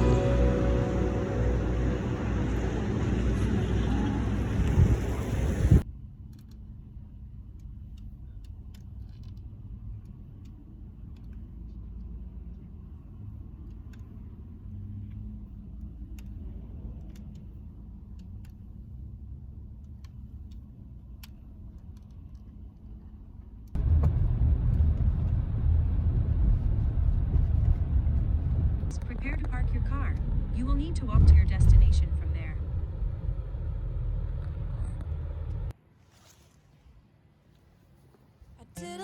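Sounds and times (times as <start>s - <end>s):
van road noise rumble: 0.0s - 39.0s.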